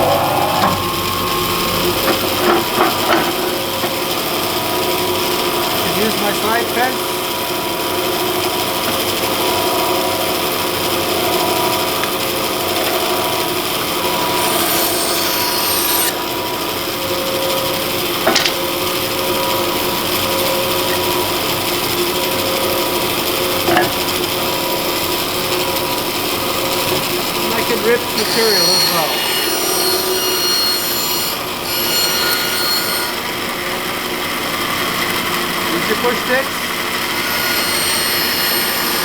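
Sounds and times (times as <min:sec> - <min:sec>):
bandsaw humming: 0:00.0 - 0:39.0
high hiss of saw cut: 0:27.4 - 0:33.2.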